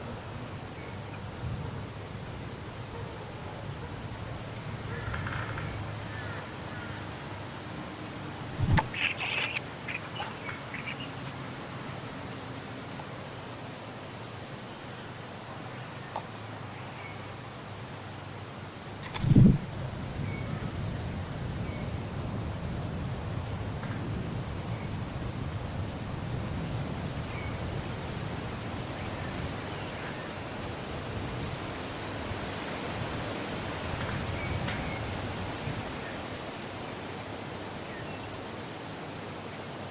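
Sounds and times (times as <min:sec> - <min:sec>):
insect trilling: 0:04.9 - 0:12.9, 0:18.1 - 0:20.6
short insect chirps: 0:07.6 - 0:14.8, 0:16.0 - 0:22.5.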